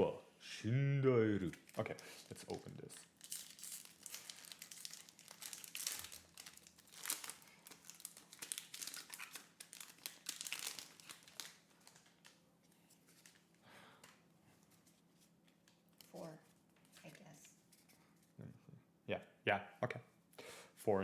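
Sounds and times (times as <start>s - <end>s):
foil wrapper crinkling and tearing: 1.5s - 12.4s.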